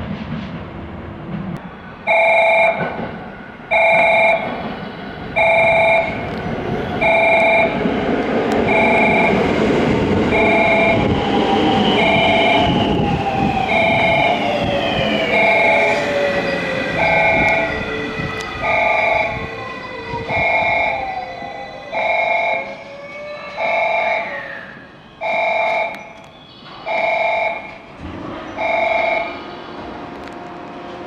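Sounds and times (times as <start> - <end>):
train cars rumbling: 0.0 - 31.0
electronic warning tone: 2.1 - 2.9, 3.7 - 4.5, 5.4 - 6.2, 7.0 - 7.8, 8.6 - 9.6, 10.3 - 19.4, 20.3 - 24.4, 25.2 - 26.2, 26.9 - 27.8, 28.6 - 29.5
electric train motor whine: 8.4 - 22.8.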